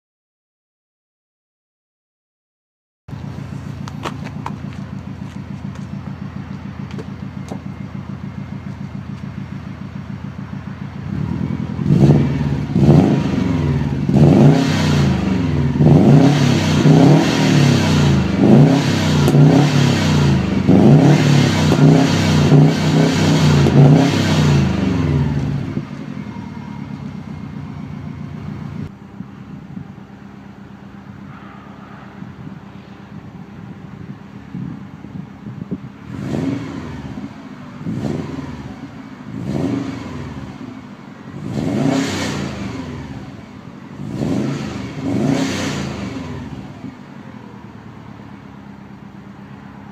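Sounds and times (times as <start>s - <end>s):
car engine revving: 3.1s - 28.9s, 35.5s - 47.6s
car engine idling: 3.1s - 49.9s.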